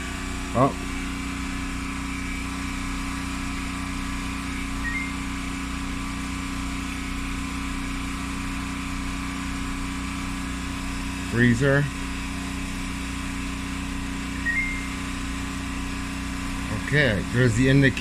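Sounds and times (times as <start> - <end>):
faint high beep: 4.8 - 5.2, 14.4 - 15.0
machine hum: 13.8 - 16.9.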